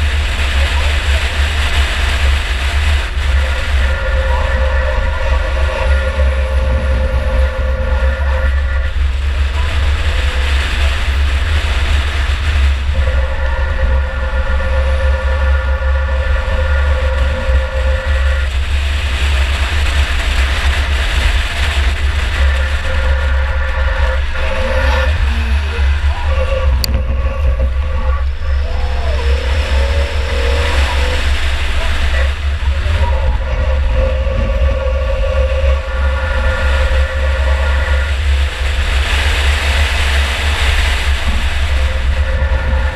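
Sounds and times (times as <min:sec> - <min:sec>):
car engine running hard: 0:00.0 - 0:42.9
steady whine: 0:00.0 - 0:42.9.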